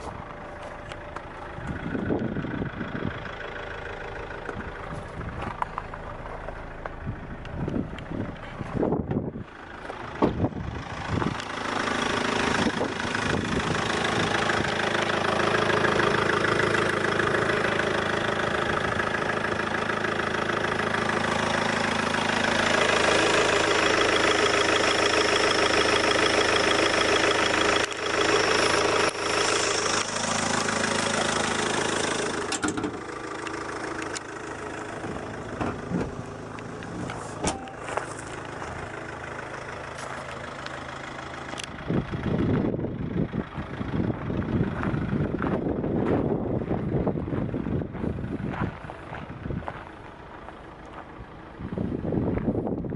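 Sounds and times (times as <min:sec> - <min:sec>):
car engine running: 0:00.0 - 0:52.9.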